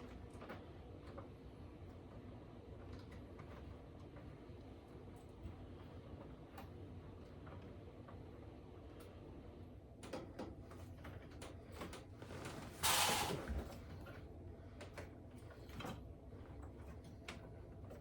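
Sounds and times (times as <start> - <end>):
brief scrape: 12.7 - 13.5.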